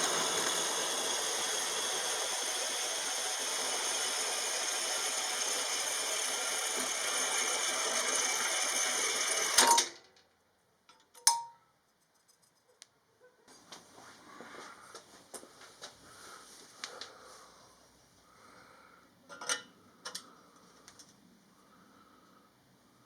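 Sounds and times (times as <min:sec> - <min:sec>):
hissing workshop tool: 0:00.0 - 0:09.6.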